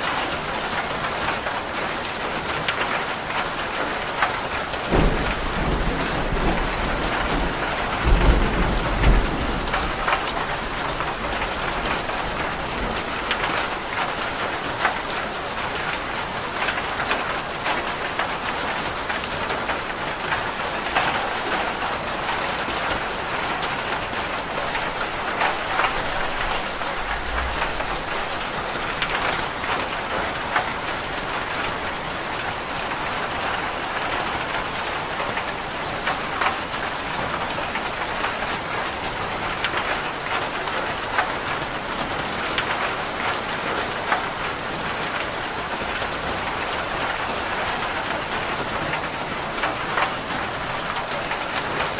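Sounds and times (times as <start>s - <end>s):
rain falling on a roof: 0.0s - 51.9s
thunder rumbling: 4.9s - 13.8s, 24.7s - 30.0s.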